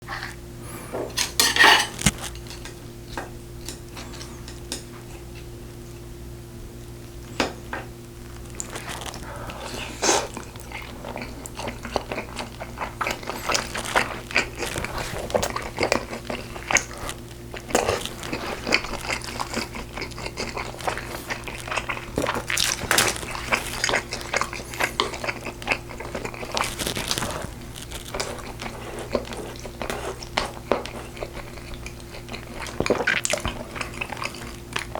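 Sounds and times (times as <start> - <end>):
steady low hum: 0.0 - 34.9
biting and chewing: 1.1 - 5.5, 8.2 - 34.9
utensils clicking against dishes: 1.2 - 2.8.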